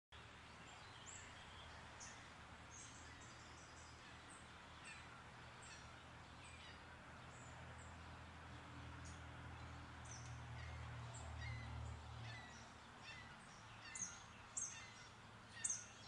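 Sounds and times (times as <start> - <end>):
faint birds chirping: 0.2 - 16.0.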